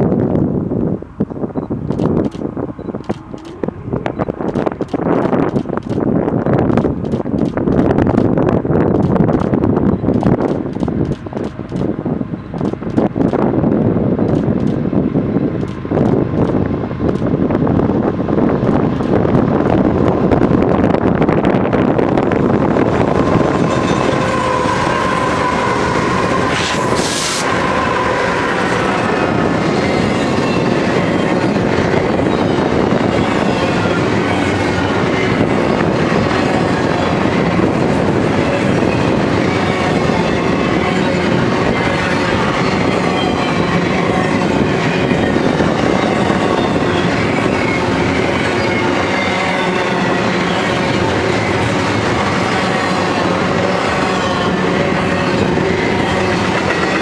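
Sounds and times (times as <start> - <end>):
freight train wheels clattering: 0.0 - 57.0
wheels squealing: 22.4 - 57.0.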